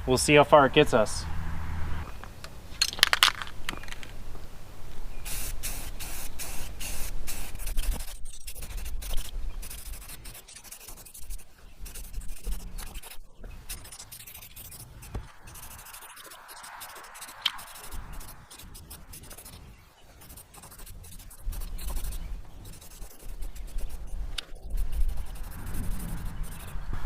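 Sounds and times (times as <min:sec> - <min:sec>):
spray paint can hissing: 0:05.2 - 0:26.9
wind rumble on microphone: 0:17.0 - 0:27.0.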